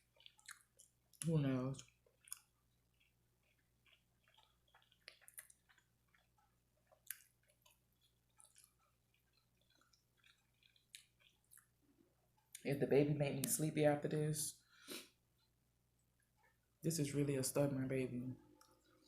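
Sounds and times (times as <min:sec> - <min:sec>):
person chewing with wet mouth clicks: 0:00.0 - 0:11.8.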